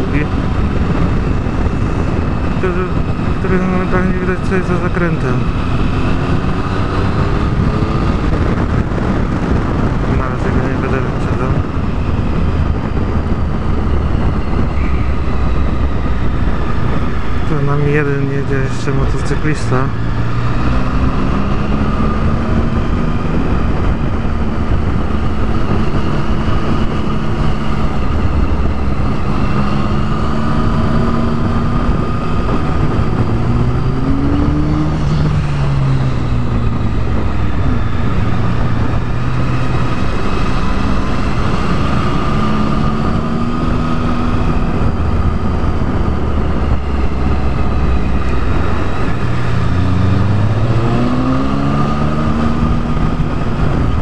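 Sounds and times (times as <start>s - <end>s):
wind and road noise: 0.0s - 54.0s
motorcycle engine running: 19.0s - 54.0s.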